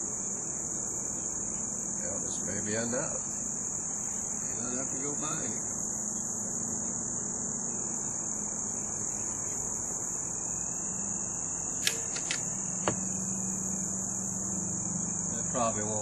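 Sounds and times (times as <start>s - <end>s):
insects trilling: 0.0s - 16.0s
sharp clicks: 11.8s - 12.5s.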